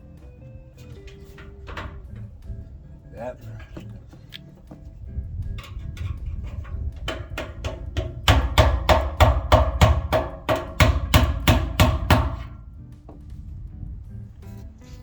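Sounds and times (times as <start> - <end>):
hammer tapping on metal: 5.6 - 13.2.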